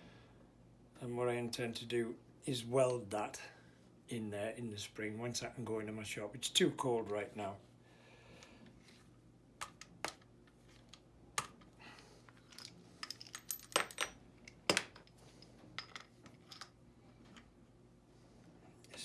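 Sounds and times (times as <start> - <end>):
metal parts clinking: 12.3 - 16.8.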